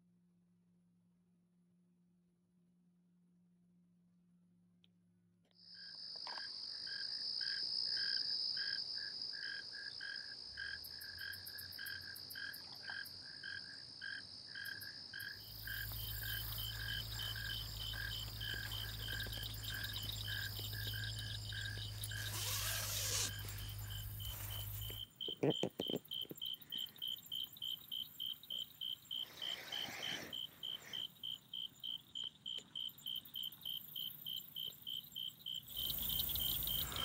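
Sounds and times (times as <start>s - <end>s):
crickets trilling: 5.6s - 37.0s
frogs pulsing call: 9.4s - 37.0s.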